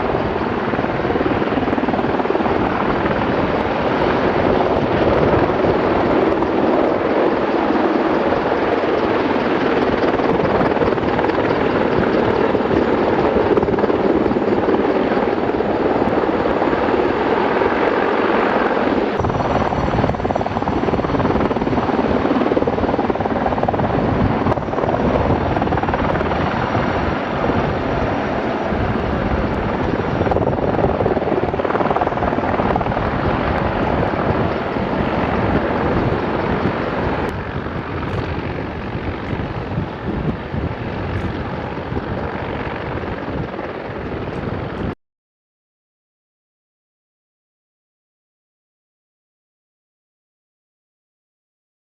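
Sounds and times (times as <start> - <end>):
helicopter rotor and engine: 0.0 - 45.0.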